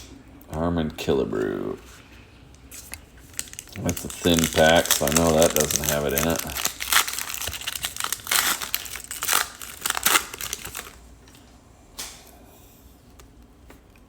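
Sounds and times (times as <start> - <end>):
card pack wrapper crinkling: 2.6 - 11.0.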